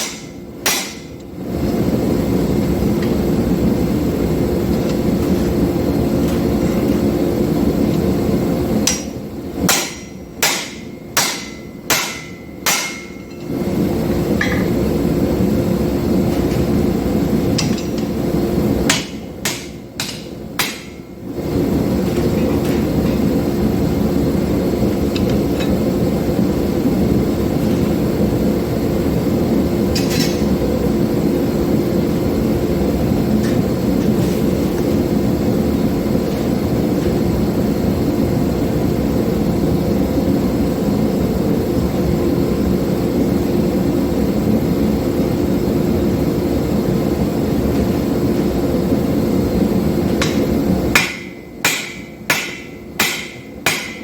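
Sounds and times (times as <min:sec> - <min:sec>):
hammer blows on hot steel: 0:00.0 - 0:01.3, 0:08.8 - 0:13.7, 0:17.5 - 0:21.2, 0:50.1 - 0:54.0.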